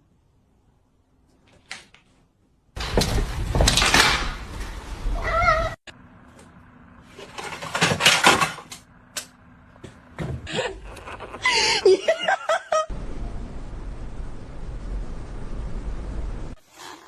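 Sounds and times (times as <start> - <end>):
cat meowing: 5.2 - 5.8
loud rustling: 6.2 - 12.6.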